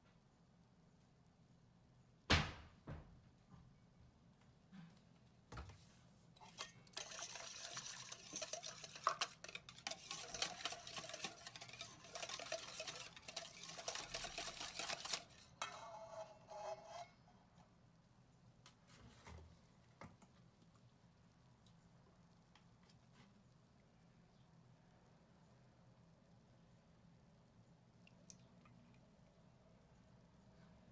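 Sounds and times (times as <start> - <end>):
utensil whisking in a bowl: 6.4 - 17.1.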